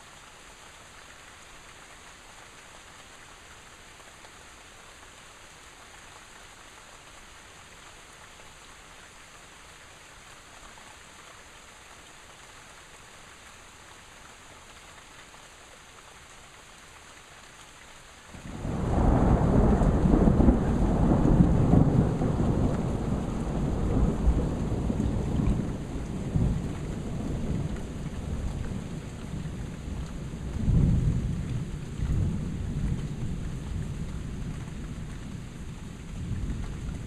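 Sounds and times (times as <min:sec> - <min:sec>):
steady rain falling: 0:00.0 - 0:37.0
thunder rumble: 0:18.5 - 0:34.5.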